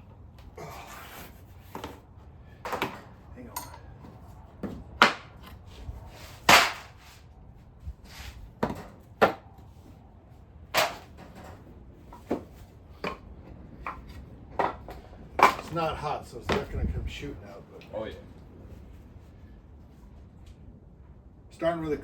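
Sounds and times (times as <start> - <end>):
tools knocking and clanking: 2.6 - 5.6, 10.8 - 15.8.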